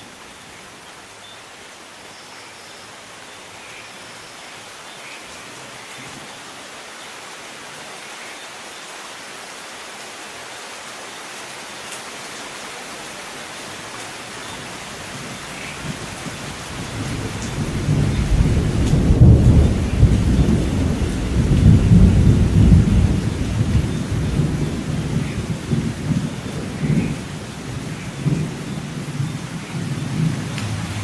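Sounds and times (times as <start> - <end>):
rain hissing: 0.0 - 31.0
thunder rumbling: 15.2 - 31.0.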